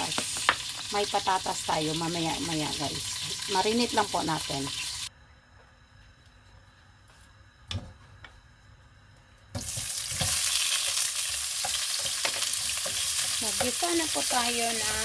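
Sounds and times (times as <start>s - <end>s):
onions sizzling in hot oil: 0.0s - 5.1s, 9.6s - 15.0s
utensil knocking pan: 11.6s - 15.0s.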